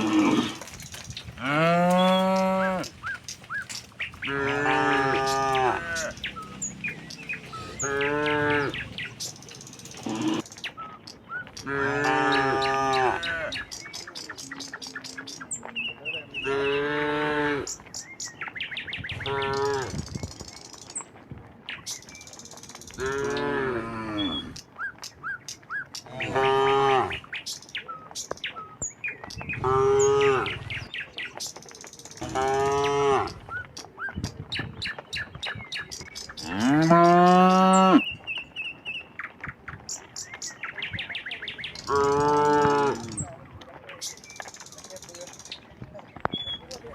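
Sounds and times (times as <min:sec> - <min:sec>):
cattle mooing: 0:00.0 - 0:00.8, 0:01.4 - 0:03.2, 0:04.1 - 0:10.5, 0:11.6 - 0:13.6, 0:16.4 - 0:17.8, 0:23.0 - 0:24.6, 0:26.1 - 0:27.2, 0:29.6 - 0:30.8, 0:32.2 - 0:33.4, 0:36.4 - 0:38.1, 0:41.9 - 0:43.2.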